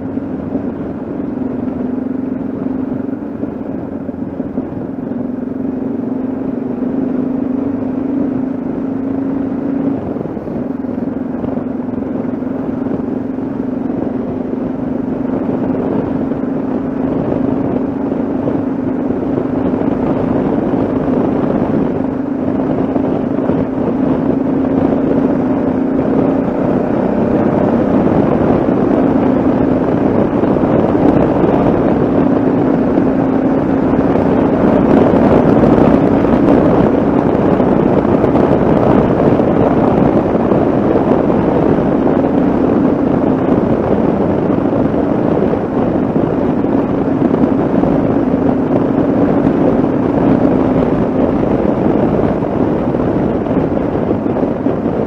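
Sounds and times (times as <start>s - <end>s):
motorcycle engine cruising: 0.0s - 55.0s
wind rushing on microphone: 0.0s - 55.0s.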